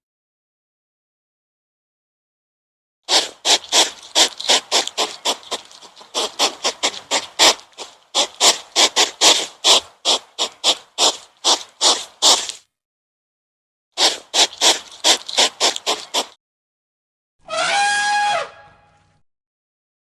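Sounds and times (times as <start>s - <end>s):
animal raspy breathy calls: 3.1s - 12.6s, 14.0s - 16.4s.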